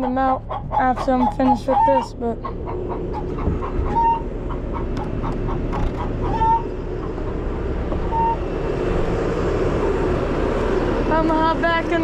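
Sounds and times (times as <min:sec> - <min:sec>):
chickens clucking: 0:00.0 - 0:08.5
diesel engine idling: 0:00.0 - 0:12.0.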